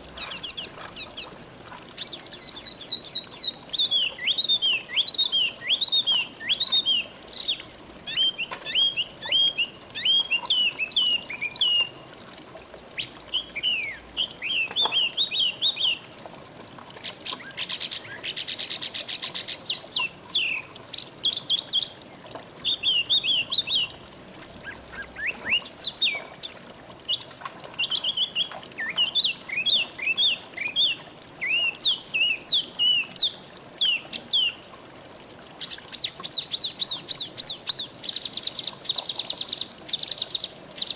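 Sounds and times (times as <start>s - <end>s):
flowing water hiss: 0.0s - 40.9s
songbird chirping: 2.0s - 12.0s, 13.0s - 16.1s, 22.6s - 24.0s.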